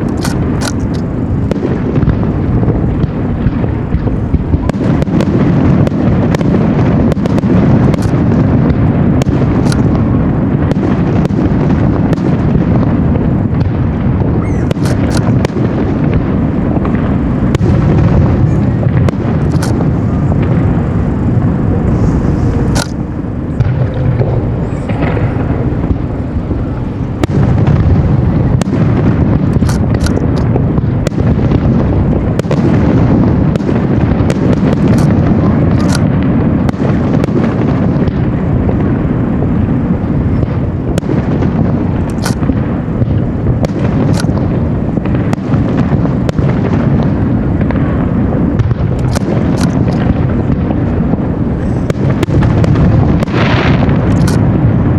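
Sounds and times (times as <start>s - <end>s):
fireworks booms rumbling: 0.0s - 54.9s
fireworks sharp cracks: 0.0s - 54.9s.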